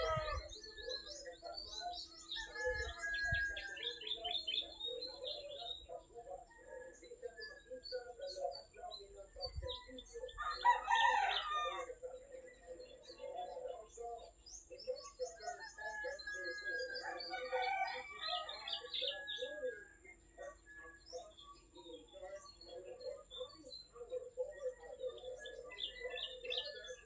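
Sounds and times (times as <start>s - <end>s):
small birds chirping: 0.0s - 27.0s
rooster crowing: 10.4s - 11.9s, 15.4s - 19.5s.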